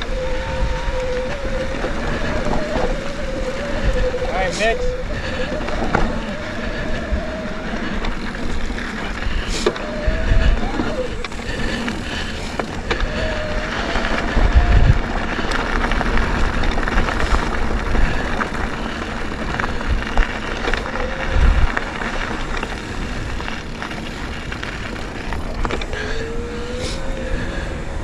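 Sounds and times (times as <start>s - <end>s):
rising squeal: 0.0s - 15.0s
bike rattles and clicks: 0.0s - 28.0s
bike tyres on dirt trail: 0.0s - 28.0s
wind buffeting microphone: 0.0s - 28.0s.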